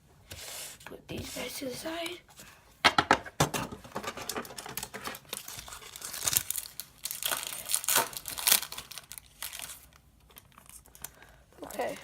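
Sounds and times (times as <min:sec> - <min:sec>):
foil wrapper crinkling: 0:04.4 - 0:12.0.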